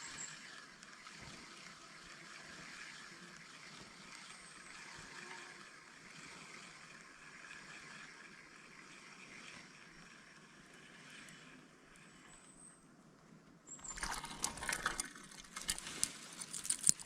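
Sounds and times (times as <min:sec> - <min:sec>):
stream flowing: 0:13.7 - 0:17.0.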